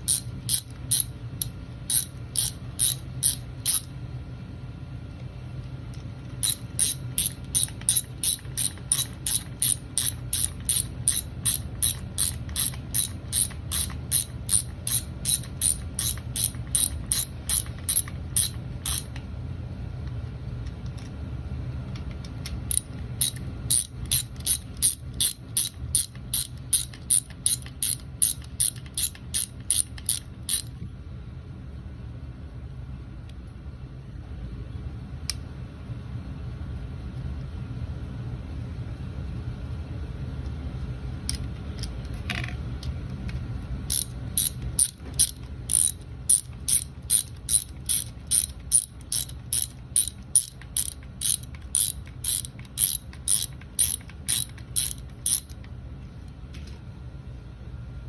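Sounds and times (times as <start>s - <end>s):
ratchet wrench clicking: 0.0s - 3.9s, 6.4s - 19.2s, 22.7s - 30.7s, 43.9s - 55.6s.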